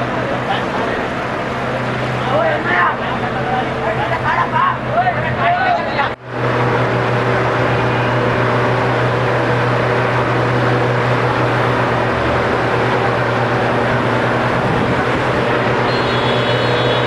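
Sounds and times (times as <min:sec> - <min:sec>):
congested road traffic: 0:00.0 - 0:17.0.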